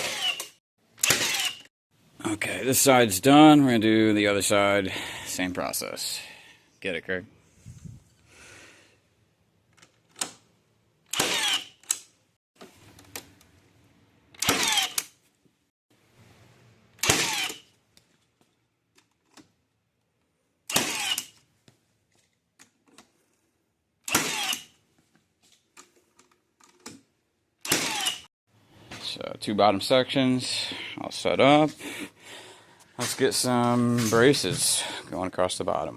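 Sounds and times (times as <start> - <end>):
power tool bursts: 0.0 - 1.7, 11.1 - 11.8, 14.4 - 15.1, 17.0 - 17.6, 20.7 - 21.4, 24.1 - 24.7, 27.6 - 28.3.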